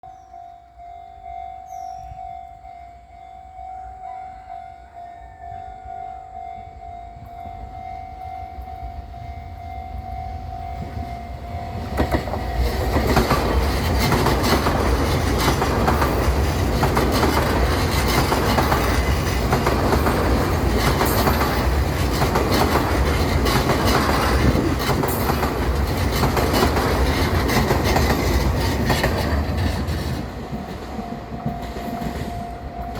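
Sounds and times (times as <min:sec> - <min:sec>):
level crossing warning tone: 0:00.1 - 0:26.0, 0:29.6 - 0:32.9
train passing loudly: 0:00.4 - 0:32.9
wheels clicking over rail joints: 0:11.7 - 0:32.9.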